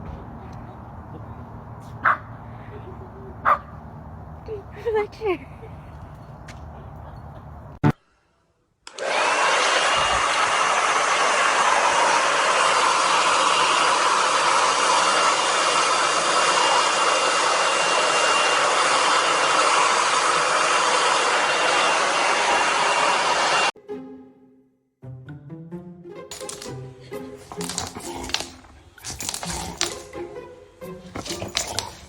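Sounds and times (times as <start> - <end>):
electric blower motor whirring: 8.9 - 23.7.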